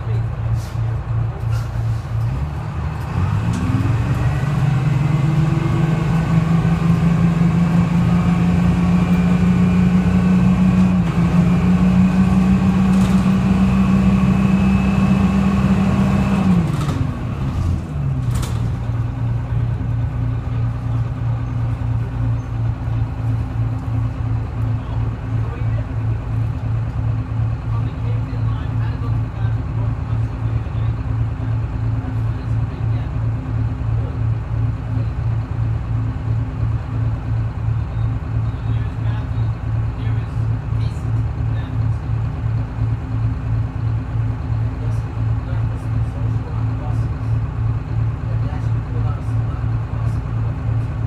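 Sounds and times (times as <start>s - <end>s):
diesel bus engine idling and revving: 0.0s - 51.0s.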